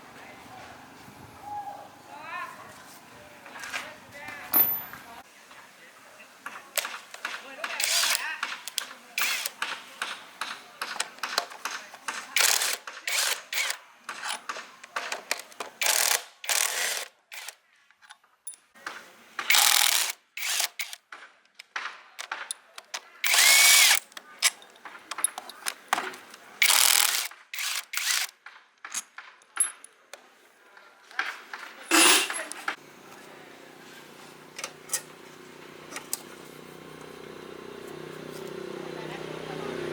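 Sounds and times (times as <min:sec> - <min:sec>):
tools clicking and rattling on metal: 0:04.5 - 0:05.1, 0:06.8 - 0:18.7, 0:21.6 - 0:30.2, 0:31.8 - 0:32.8, 0:34.6 - 0:35.2.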